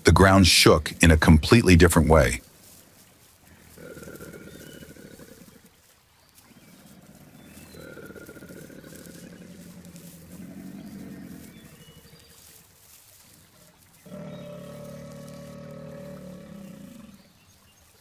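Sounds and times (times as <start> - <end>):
animal growling: 3.7 - 5.6, 6.7 - 12.2, 14.0 - 17.3.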